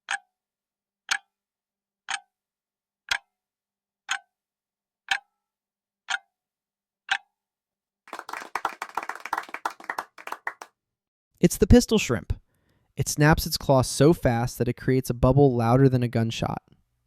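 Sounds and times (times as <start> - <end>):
countdown timer ticking: 0.1 - 0.3, 1.1 - 1.3, 3.1 - 3.3, 4.1 - 4.3, 5.1 - 5.3
people clapping: 8.1 - 10.7.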